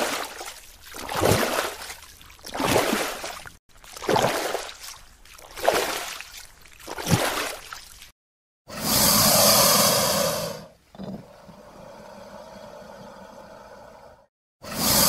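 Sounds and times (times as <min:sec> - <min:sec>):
water surging and sloshing: 0:00.0 - 0:08.2.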